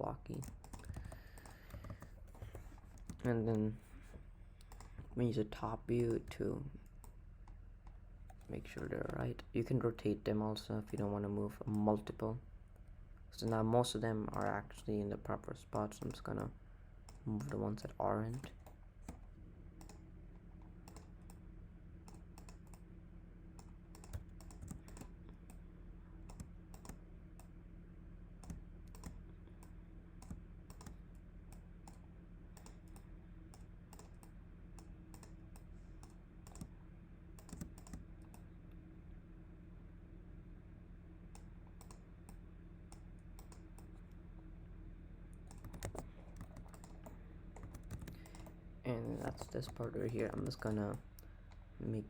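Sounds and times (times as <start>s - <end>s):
low electrical hum: 0.0s - 52.0s
keyboard and mouse clicking: 0.3s - 3.6s, 4.6s - 5.1s, 14.2s - 14.6s, 19.8s - 20.0s, 20.8s - 21.4s, 22.0s - 22.8s, 23.6s - 25.6s, 26.3s - 27.5s, 28.4s - 32.0s, 32.6s - 36.7s, 37.4s - 38.4s, 41.3s - 44.0s, 45.4s - 51.3s.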